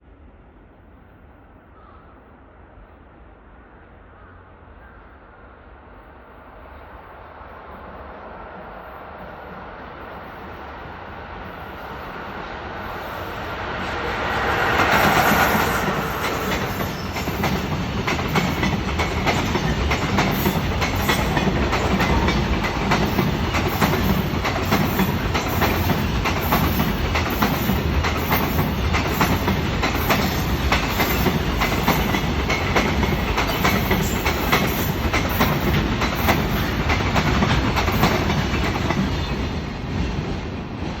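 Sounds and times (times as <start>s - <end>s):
electric locomotive passing: 2.8s - 41.0s
wheels clacking over rail joints: 14.4s - 41.0s.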